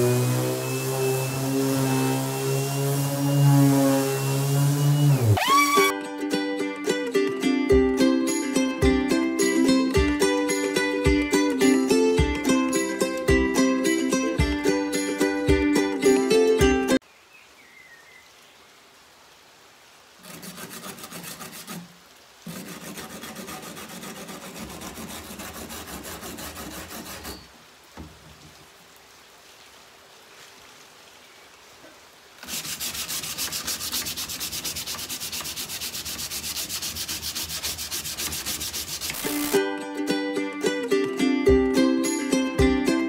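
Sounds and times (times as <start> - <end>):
sandpaper rubbing on wood: 0.0 - 5.9, 20.2 - 27.5, 32.4 - 39.6.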